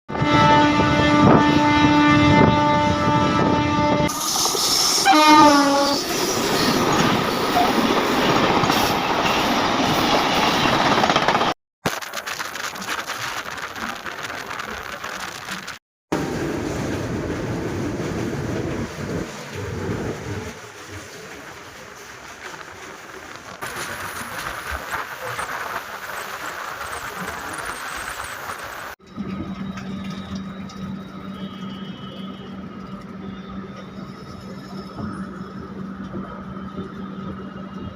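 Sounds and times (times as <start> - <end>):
train horn blast: 0.1 - 4.2, 5.0 - 6.1, 30.7 - 33.9
train rumbling and wheels clattering: 0.1 - 11.6, 12.6 - 37.9.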